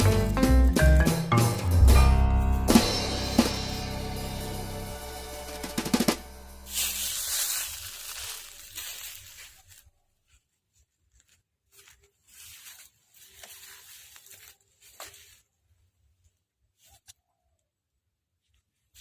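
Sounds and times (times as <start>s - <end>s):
rustling and scraping: 6.0s - 17.2s.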